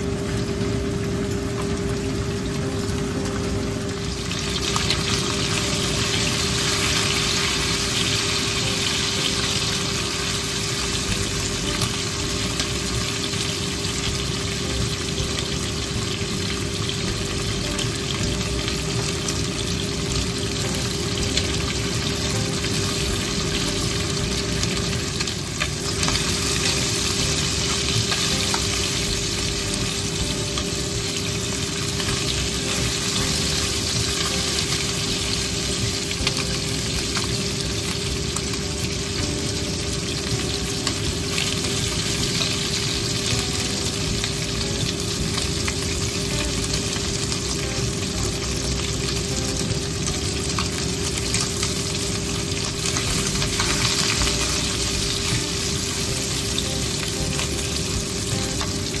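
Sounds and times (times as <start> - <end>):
chicken livers sizzling in a pan: 0.0 - 59.0
utensils clicking in a pan: 45.4 - 59.0.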